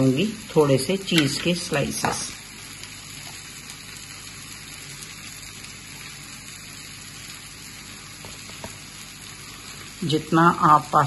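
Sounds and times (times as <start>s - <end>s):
onions and tomatoes sizzling: 0.0s - 11.0s.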